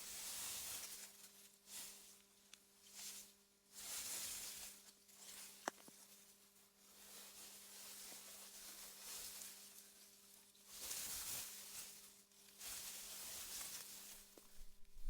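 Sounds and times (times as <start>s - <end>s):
faint wind through grass: 13.4s - 15.0s
steady low hum: 14.5s - 15.0s.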